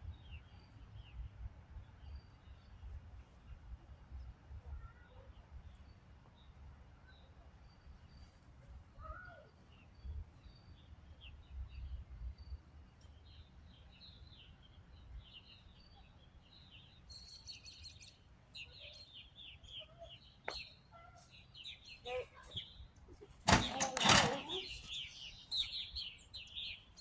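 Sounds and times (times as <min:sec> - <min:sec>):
small birds chirping: 0:09.0 - 0:27.0
sharp click: 0:23.5 - 0:24.5.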